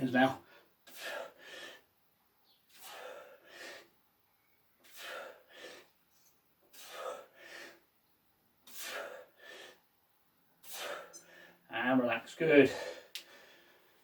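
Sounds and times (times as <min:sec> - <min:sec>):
person breathing hard: 0:00.4 - 0:01.9, 0:02.7 - 0:04.0, 0:04.8 - 0:06.0, 0:06.7 - 0:07.9, 0:08.6 - 0:09.9, 0:10.6 - 0:11.7, 0:12.7 - 0:14.0.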